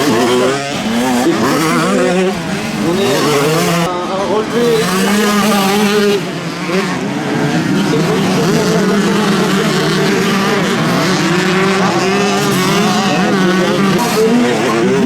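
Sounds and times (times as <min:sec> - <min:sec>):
motocross bike engines racing: 0:00.0 - 0:15.0.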